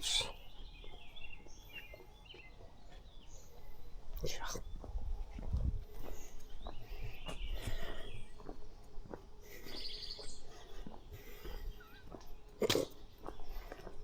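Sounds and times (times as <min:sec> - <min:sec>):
footsteps on a trail: 0:00.0 - 0:14.0
small birds chirping: 0:00.0 - 0:14.0.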